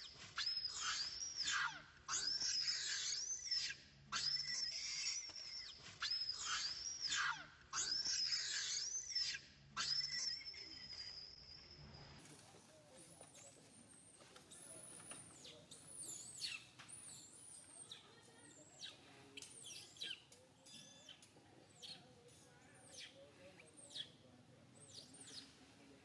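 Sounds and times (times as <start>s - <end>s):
faint downward bird chirps: 0.4s - 12.2s.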